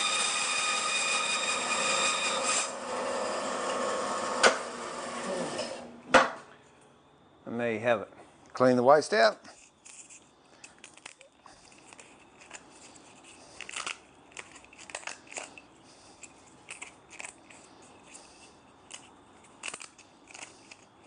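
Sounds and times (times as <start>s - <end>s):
wood clicking and scraping: 9.5s - 21.0s.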